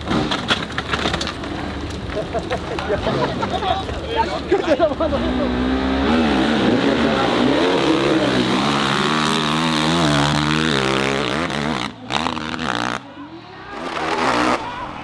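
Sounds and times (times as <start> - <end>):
dirt bike engine revving: 5.0 - 13.0, 13.7 - 14.8.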